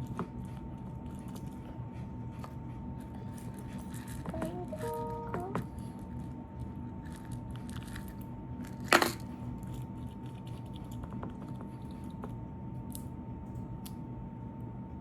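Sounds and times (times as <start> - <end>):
faint steady hum: 0.0 - 15.0
crackling handling noises: 2.4 - 13.1.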